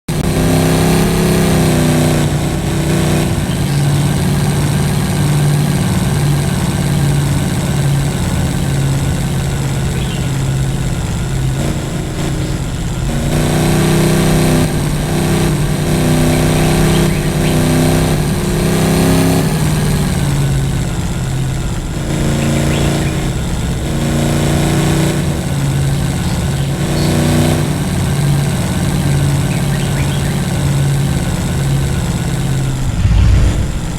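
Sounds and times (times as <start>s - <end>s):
vehicle engine revving: 0.1s - 33.9s.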